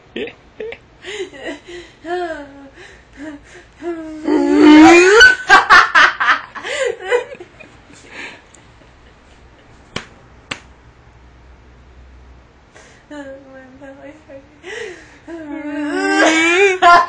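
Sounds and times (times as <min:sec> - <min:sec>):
woman laughing hard: 0:04.3 - 0:09.2, 0:15.4 - 0:17.0.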